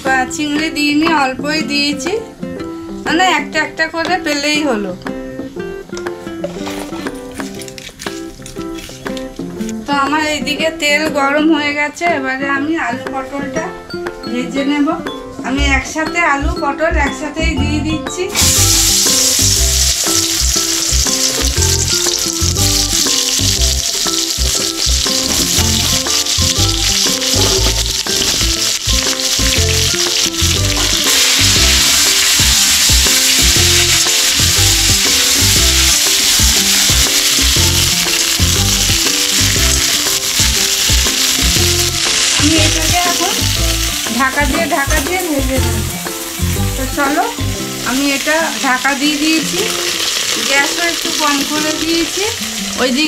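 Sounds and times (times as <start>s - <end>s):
vegetables sizzling in hot oil: 18.3s - 53.0s.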